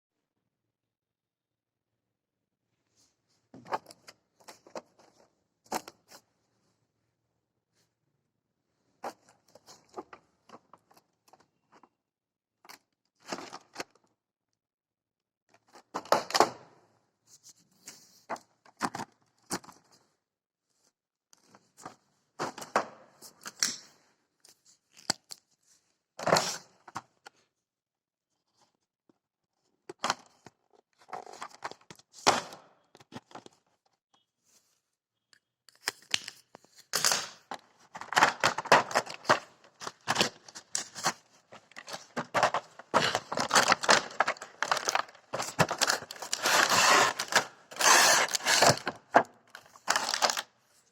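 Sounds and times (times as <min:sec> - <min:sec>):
parcel packaging tearing: 0:43.0 - 0:49.0, 0:49.7 - 0:50.4.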